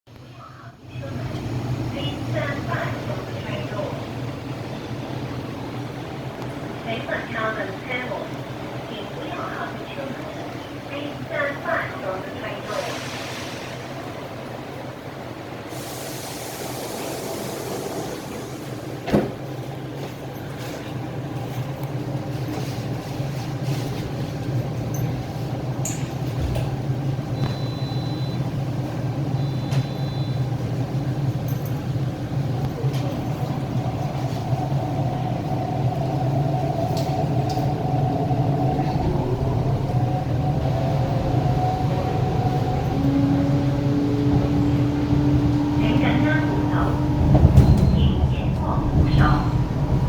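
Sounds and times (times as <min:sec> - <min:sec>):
electric train humming: 0:00.8 - 0:20.1, 0:24.4 - 0:50.0
short high beeps: 0:27.4 - 0:28.4, 0:29.4 - 0:30.4.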